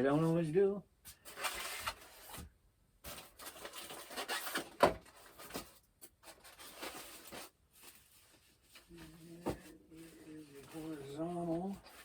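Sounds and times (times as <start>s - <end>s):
foam and packaging rubbing: 3.1s - 12.0s.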